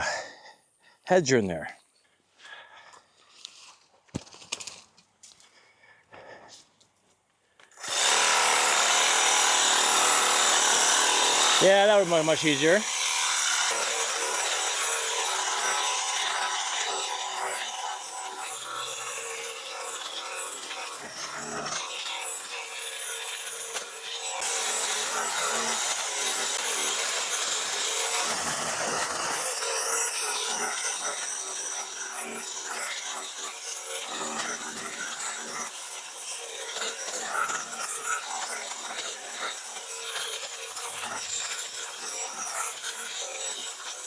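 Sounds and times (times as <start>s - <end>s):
branches rasping and scraping: 2.5s - 6.7s
hedge trimmer electric buzz: 7.8s - 44.0s.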